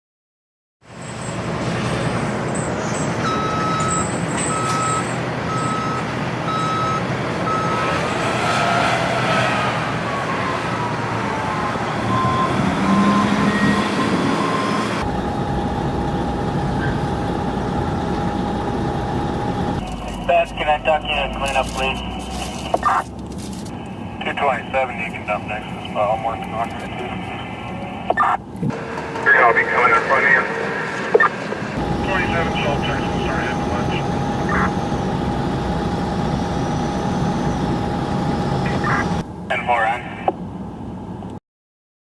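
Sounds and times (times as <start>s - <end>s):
heavy machinery engine din: 1.0s - 31.0s, 31.6s - 40.6s
backup alarm beeping: 3.2s - 7.8s, 12.0s - 23.1s, 31.8s - 39.2s
steady tone: 15.0s - 22.9s, 31.8s - 39.3s.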